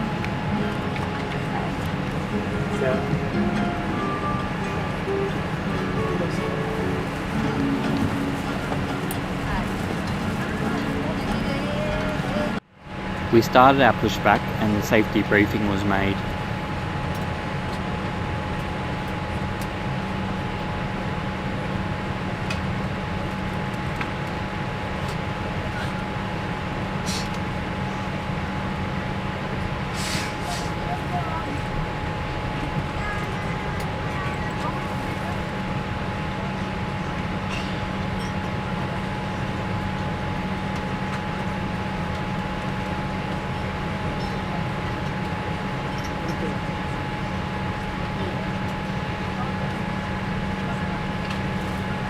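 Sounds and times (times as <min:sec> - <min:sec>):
ventilation air rushing: 0:00.0 - 0:15.6
constant mid-pitched hum: 0:00.0 - 0:29.9, 0:30.5 - 0:52.0
airliner cabin low rumble: 0:00.0 - 0:52.0.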